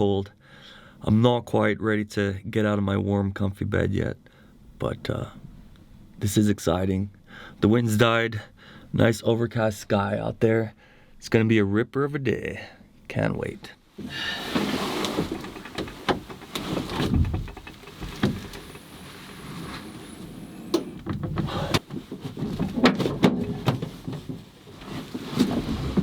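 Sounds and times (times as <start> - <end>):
knocks clicks and rustling: 14.4 - 20.0, 20.7 - 26.0.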